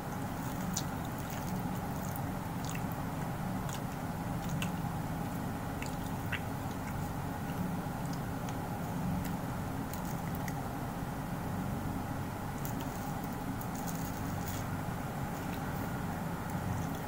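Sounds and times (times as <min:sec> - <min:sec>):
steady low hum: 0:00.0 - 0:17.0
person chewing food: 0:00.4 - 0:08.6.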